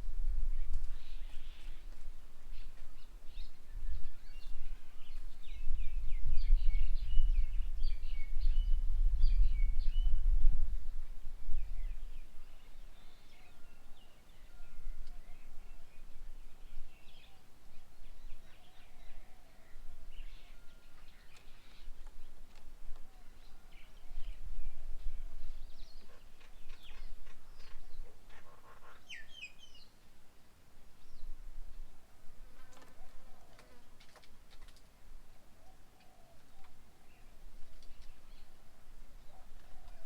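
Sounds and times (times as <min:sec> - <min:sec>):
small birds chirping: 0:15.0 - 0:30.1, 0:32.6 - 0:40.0.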